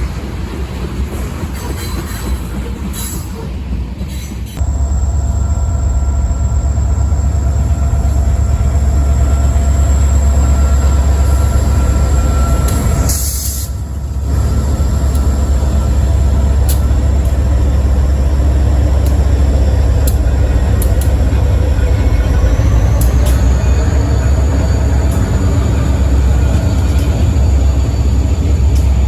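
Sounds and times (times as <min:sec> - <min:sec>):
freight train cars rumbling: 0:00.0 - 0:29.0.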